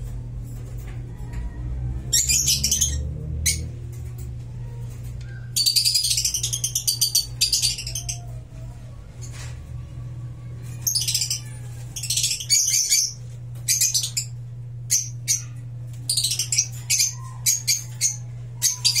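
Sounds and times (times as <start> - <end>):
steady low hum: 0.0 - 19.0
lovebirds chattering: 4.8 - 9.5, 10.4 - 19.0.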